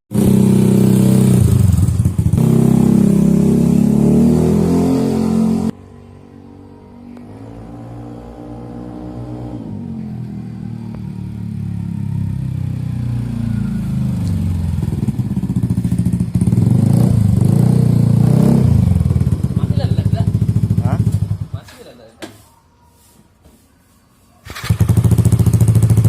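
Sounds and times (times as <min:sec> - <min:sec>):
scooter engine with pulsing exhaust: 0:00.1 - 0:04.0, 0:10.6 - 0:21.6, 0:24.4 - 0:26.0.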